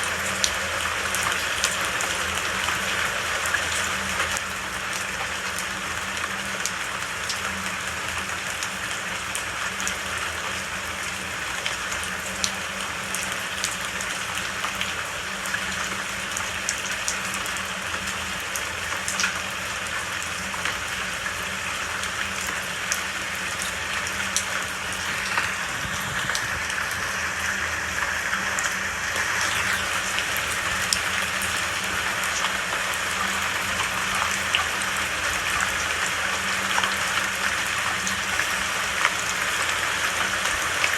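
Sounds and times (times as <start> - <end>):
steady rain falling: 0.0 - 40.9
raindrops ticking: 11.0 - 40.9.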